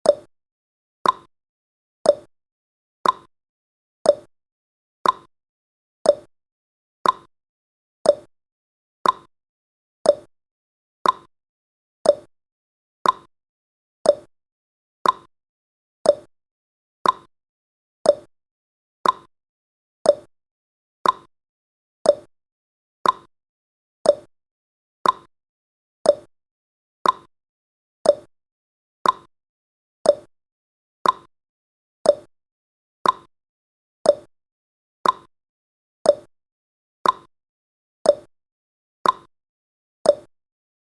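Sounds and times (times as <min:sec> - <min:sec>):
clock ticking: 0:03.0 - 0:03.3, 0:05.0 - 0:05.3, 0:07.0 - 0:07.3, 0:09.0 - 0:09.3, 0:11.0 - 0:11.3, 0:13.0 - 0:13.3, 0:15.0 - 0:15.3, 0:16.1 - 0:16.3, 0:17.0 - 0:17.3, 0:19.0 - 0:19.3, 0:21.0 - 0:21.3, 0:22.1 - 0:22.3, 0:23.0 - 0:23.3, 0:24.1 - 0:24.3, 0:25.0 - 0:25.3, 0:26.1 - 0:26.3, 0:27.0 - 0:27.3, 0:28.0 - 0:28.3, 0:29.0 - 0:29.3, 0:30.1 - 0:30.3, 0:31.0 - 0:31.3, 0:33.0 - 0:33.3, 0:34.1 - 0:34.3, 0:35.0 - 0:35.3, 0:37.0 - 0:37.3, 0:38.1 - 0:38.3, 0:39.0 - 0:39.3, 0:40.1 - 0:40.3.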